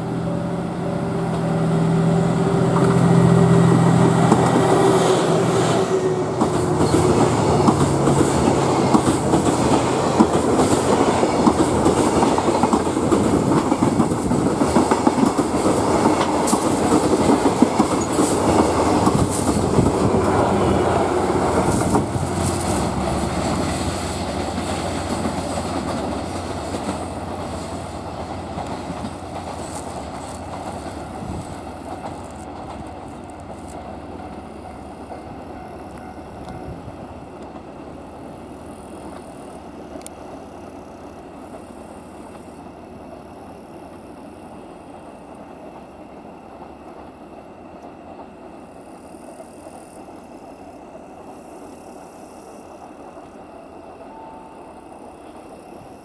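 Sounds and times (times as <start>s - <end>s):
locomotive engine drone: 0.0s - 56.0s
freight wagons clattering over rail joints: 6.3s - 20.6s, 21.4s - 37.7s.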